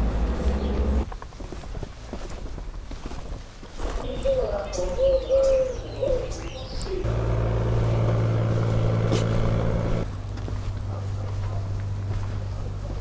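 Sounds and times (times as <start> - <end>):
steady engine hum: 0.0 - 1.1, 4.4 - 13.0
small birds chirping: 0.0 - 2.4, 3.5 - 13.0
bird cooing: 4.1 - 7.1.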